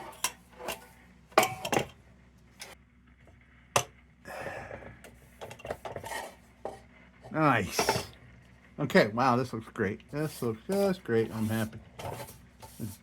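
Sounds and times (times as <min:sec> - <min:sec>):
scraping rustle: 0:10.2 - 0:13.0.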